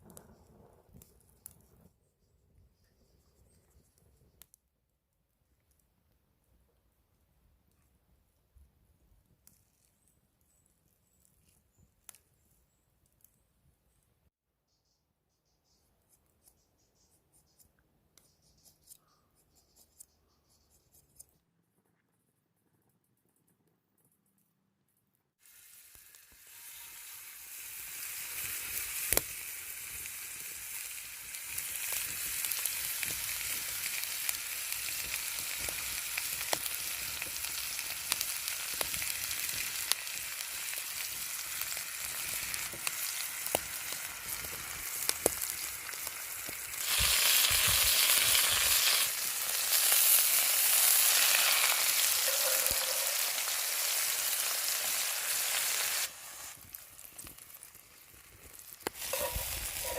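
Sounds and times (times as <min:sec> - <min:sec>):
steak sizzling with sharp pops: 0:25.4 - 0:59.9.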